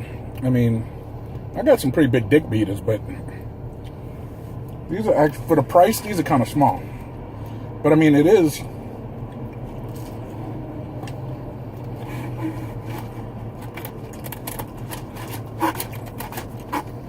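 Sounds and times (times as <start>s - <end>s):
steady low hum: 0.0s - 17.0s
clicks and rustling of eating: 11.0s - 17.0s.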